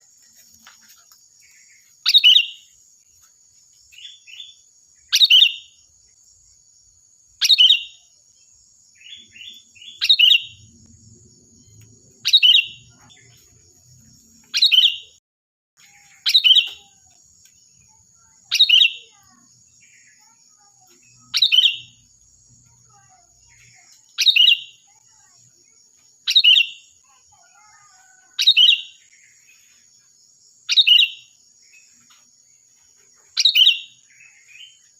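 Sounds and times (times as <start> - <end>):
bird sharp calls: 1.6 - 2.7, 9.0 - 10.7, 12.2 - 13.4, 15.9 - 17.1, 22.9 - 25.4, 26.3 - 29.0, 30.7 - 32.0, 33.3 - 34.8.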